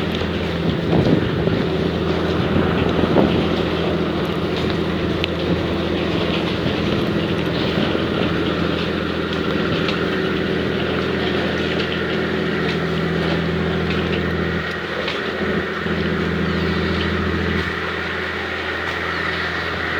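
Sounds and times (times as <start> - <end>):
wind noise: 0.0 - 14.8
ferry engines humming: 0.0 - 19.9
rushing water: 0.0 - 19.9.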